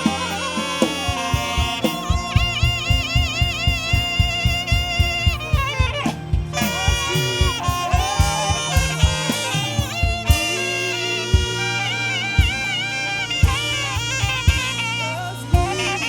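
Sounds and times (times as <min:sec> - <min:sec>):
band drum beat: 0:00.0 - 0:16.0
saxophone melody: 0:00.0 - 0:16.0.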